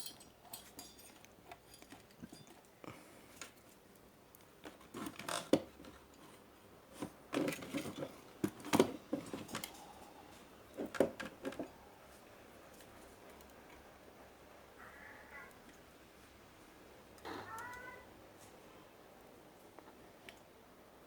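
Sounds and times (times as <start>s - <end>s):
tools and parts rattling on workbench: 0.0s - 2.8s, 7.0s - 9.8s.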